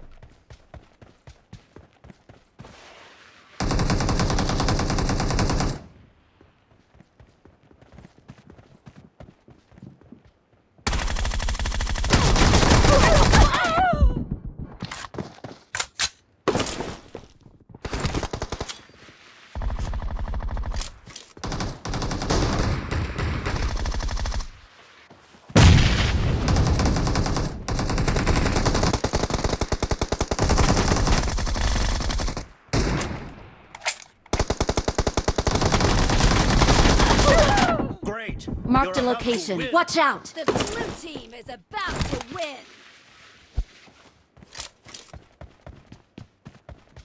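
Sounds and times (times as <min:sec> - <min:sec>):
video game automatic gunfire: 0:03.6 - 0:05.8, 0:21.4 - 0:24.5, 0:26.5 - 0:32.8, 0:34.4 - 0:37.6.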